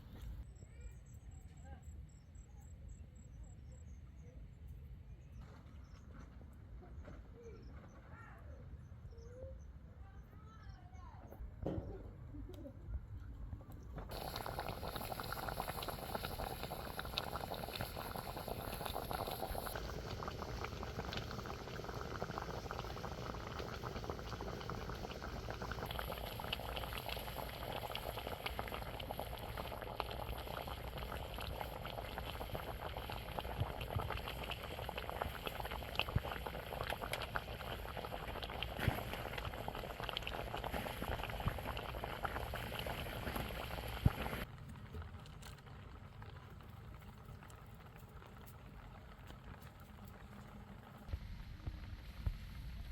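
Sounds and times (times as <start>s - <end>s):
pot of food boiling: 13.7s - 52.9s.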